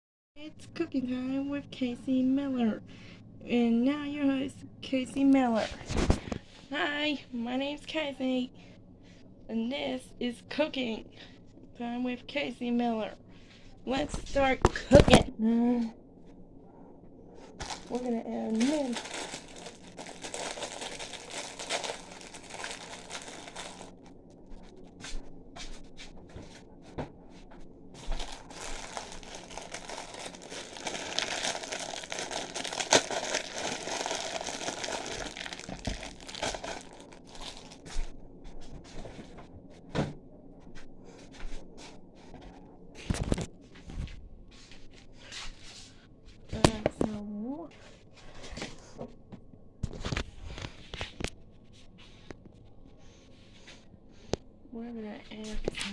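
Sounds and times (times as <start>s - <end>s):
packaging crinkling: 17.5s - 24.7s, 28.0s - 38.1s.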